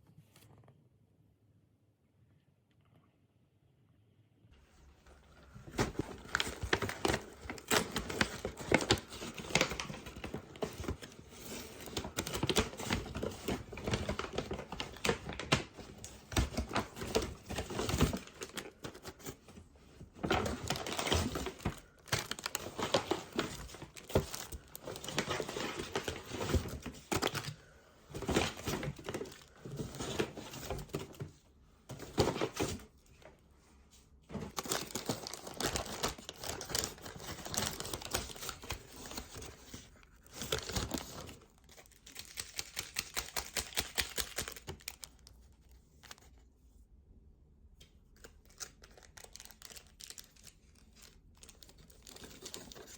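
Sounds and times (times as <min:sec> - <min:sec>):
plastic packaging crinkling: 0:05.7 - 0:19.4, 0:20.2 - 0:31.2, 0:34.3 - 0:46.3, 0:48.2 - 0:52.9.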